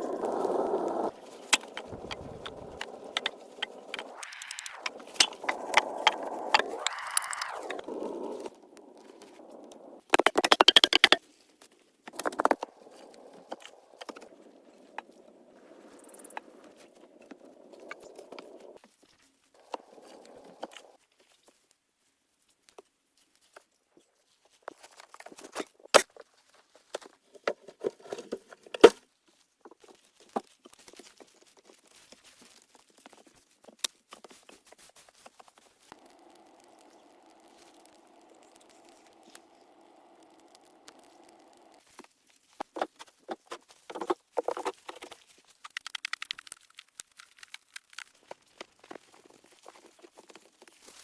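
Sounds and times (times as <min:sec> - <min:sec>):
sharp knocks and clicks: 0:10.2 - 0:11.2.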